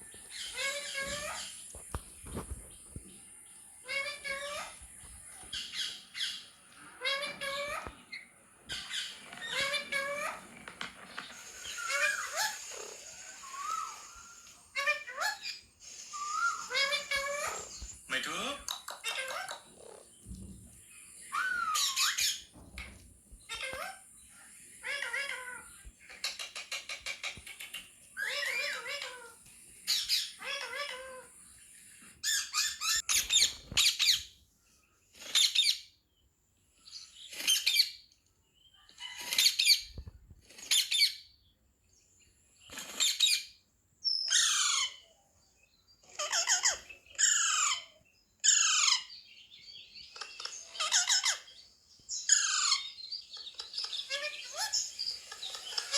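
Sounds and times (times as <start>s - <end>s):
parrot screeching: 8.8s - 10.4s, 11.6s - 17.8s, 21.3s - 22.5s, 28.2s - 31.3s, 44.3s - 45.0s, 46.1s - 49.1s, 50.7s - 51.5s, 52.3s - 53.0s.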